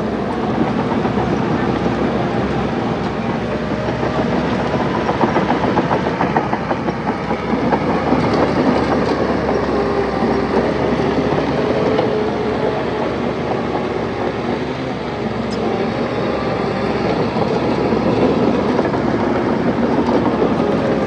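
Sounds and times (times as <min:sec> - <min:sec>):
diesel engine under load: 0:00.0 - 0:21.0
steel tracks clanking: 0:00.0 - 0:21.0.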